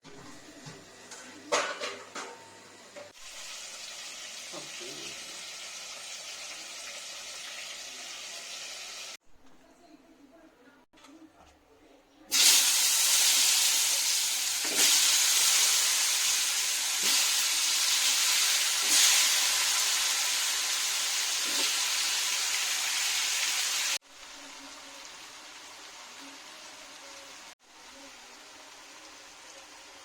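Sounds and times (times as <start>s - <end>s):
food sizzling in hot oil: 3.1s - 9.2s, 12.3s - 30.0s.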